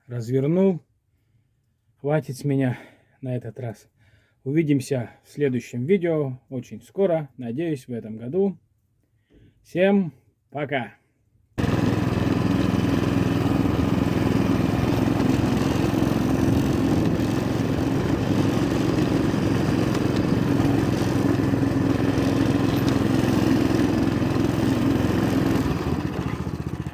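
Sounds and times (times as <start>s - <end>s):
small engine running steadily: 11.6s - 26.9s.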